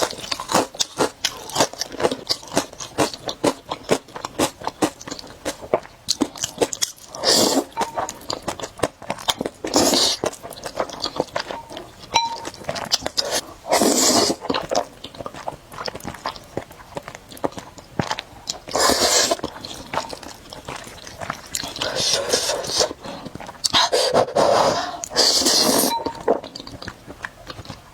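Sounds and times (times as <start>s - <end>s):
chewing with wet mouth clicks: 0.0s - 24.0s, 25.0s - 27.9s
noodle slurping: 13.2s - 14.4s, 18.7s - 19.8s, 21.7s - 23.2s, 23.8s - 26.1s.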